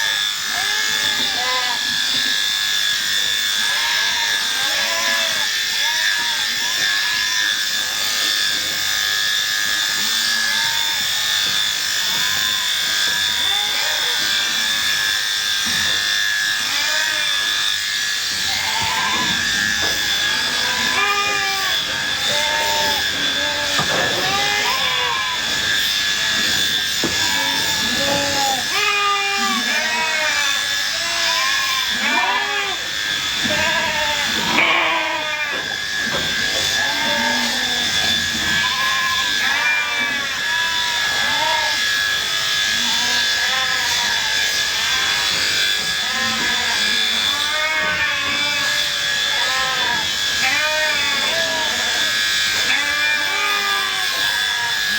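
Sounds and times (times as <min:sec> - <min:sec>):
electric shears whining: 0:00.0 - 0:54.9
sheep bleating: 0:03.4 - 0:08.3, 0:10.1 - 0:54.9.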